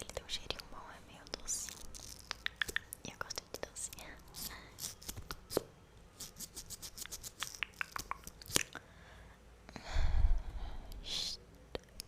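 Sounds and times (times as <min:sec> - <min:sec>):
wet mouth clicks and smacks: 0:01.3 - 0:03.7, 0:07.0 - 0:08.8
breathy noise with low rumble: 0:08.7 - 0:12.0.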